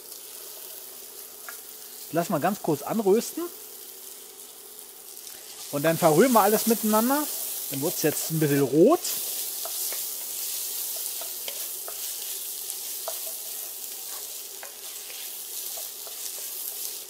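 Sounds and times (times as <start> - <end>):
food sizzling in a pot: 0.0 - 17.0
spoon scraping and tapping pot: 10.9 - 12.2, 12.9 - 16.6.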